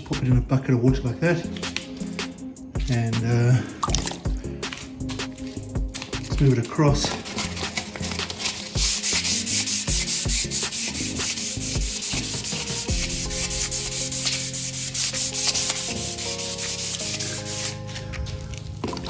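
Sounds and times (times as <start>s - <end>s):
wet sanding metal: 4.7s - 18.3s.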